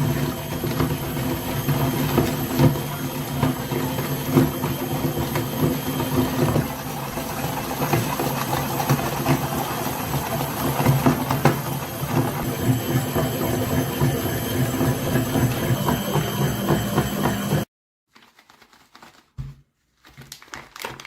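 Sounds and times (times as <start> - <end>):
meat grinder motor running: 0.0 - 17.7
cracking and clicking in grinder: 20.2 - 21.0.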